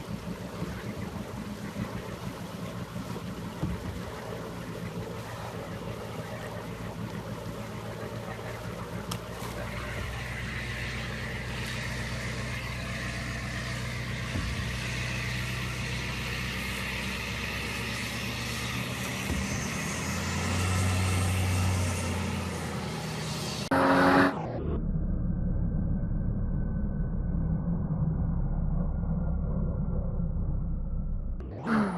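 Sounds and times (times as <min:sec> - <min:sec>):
diesel truck engine running: 0:00.0 - 0:23.8.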